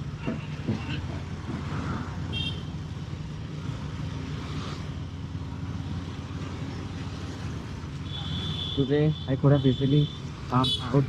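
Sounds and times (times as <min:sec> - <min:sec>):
road and wind noise: 0:00.0 - 0:11.0.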